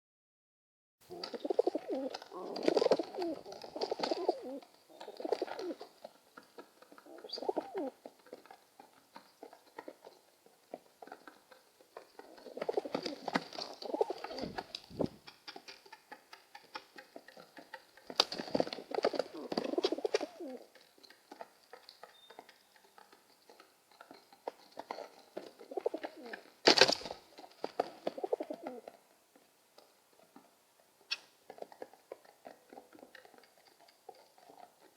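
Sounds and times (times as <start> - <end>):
pigeons cooing: 1.1 - 5.9, 6.9 - 8.0, 12.2 - 15.2, 18.4 - 20.7, 25.4 - 26.5, 27.7 - 28.9.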